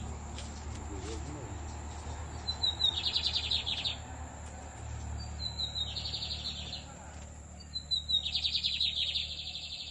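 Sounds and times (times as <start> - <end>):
bird singing buzzy trill: 2.3 - 4.1, 5.1 - 9.9.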